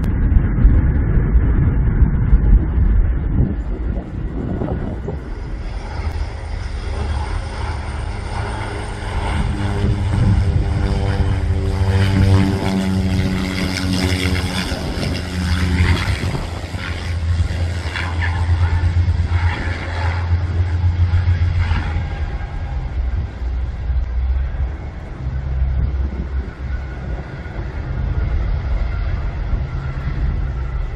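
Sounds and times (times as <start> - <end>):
aircraft engines droning: 0.0 - 30.9.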